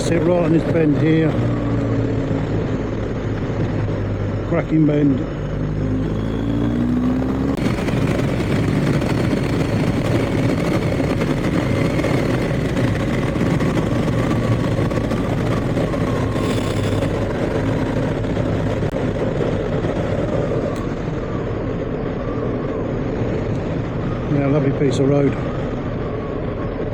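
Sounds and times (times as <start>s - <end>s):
wind and road noise: 0.0s - 26.9s
motorcycle engine running: 0.9s - 21.0s.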